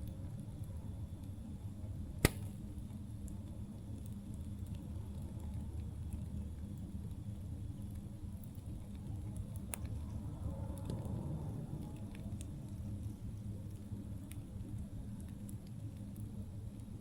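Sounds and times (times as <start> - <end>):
campfire rumbling: 0.0 - 17.0
fire crackling: 0.0 - 17.0
burning wood popping: 2.1 - 3.3.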